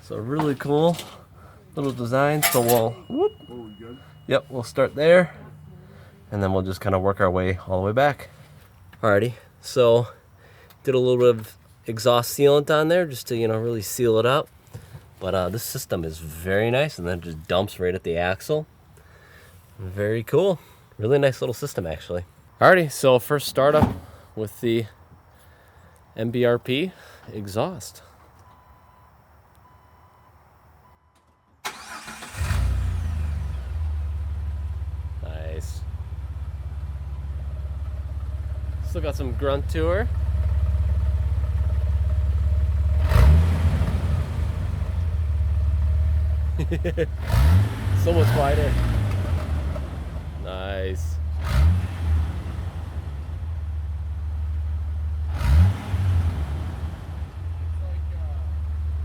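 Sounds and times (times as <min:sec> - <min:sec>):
car engine idling: 0:00.0 - 0:09.6, 0:31.7 - 0:51.4
engine starter cranking: 0:00.3 - 0:04.3, 0:31.6 - 0:33.3
throttle blips: 0:02.9 - 0:05.7.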